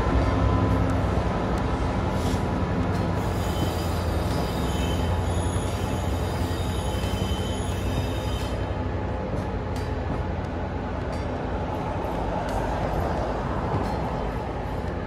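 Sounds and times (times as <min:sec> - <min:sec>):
diesel locomotive engine running: 0:00.0 - 0:15.0
high wheel squeal: 0:03.2 - 0:08.8.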